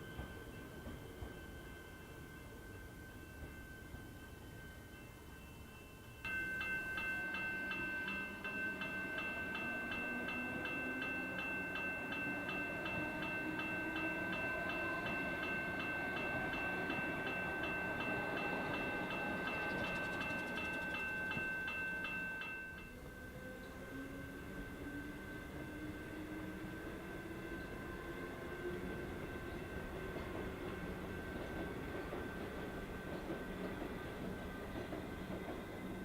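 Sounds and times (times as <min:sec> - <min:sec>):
level crossing warning bell: 0:00.0 - 0:33.8
electric train passing: 0:00.0 - 0:36.0.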